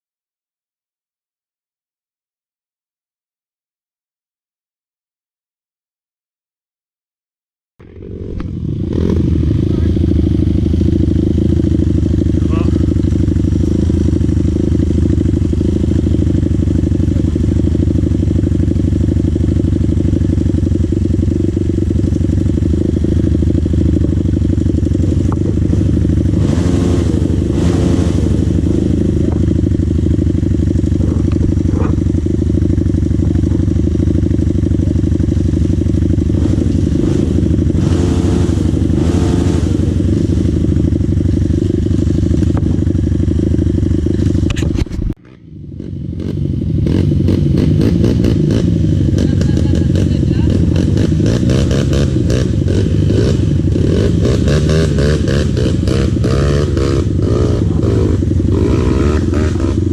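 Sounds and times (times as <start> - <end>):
dirt bike engine running: 7.8 - 59.9.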